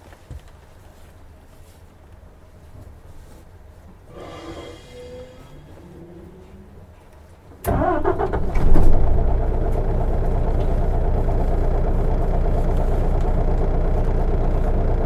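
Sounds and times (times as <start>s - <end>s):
diesel engine starting and idling: 7.6s - 15.0s.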